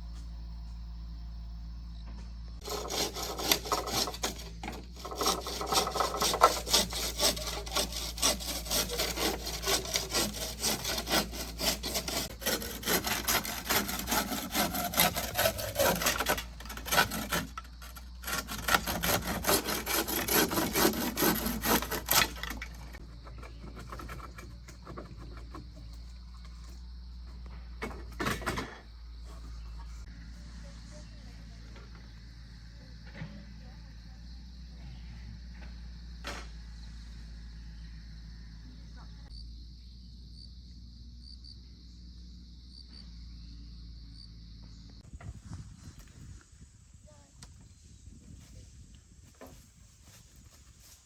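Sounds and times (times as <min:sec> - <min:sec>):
hand saw cutting wood: 0:02.6 - 0:25.6.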